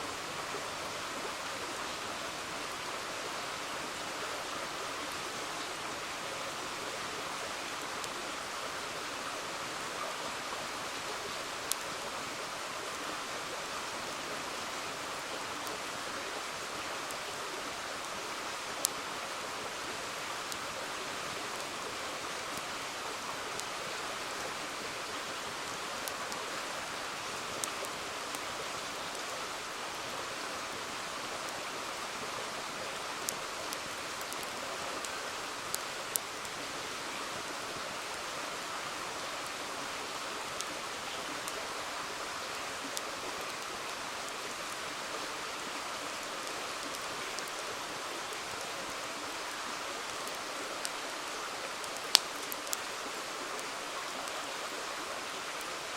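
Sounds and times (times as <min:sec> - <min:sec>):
river water flowing: 0:00.0 - 0:55.9
campfire crackling and popping: 0:10.9 - 0:12.0, 0:16.5 - 0:37.9, 0:39.2 - 0:49.0, 0:50.0 - 0:54.4.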